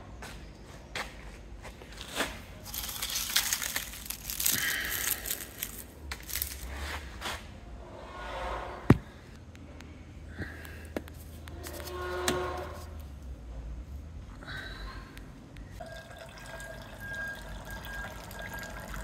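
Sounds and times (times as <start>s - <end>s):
tools and metal parts clattering: 2.6s - 6.8s.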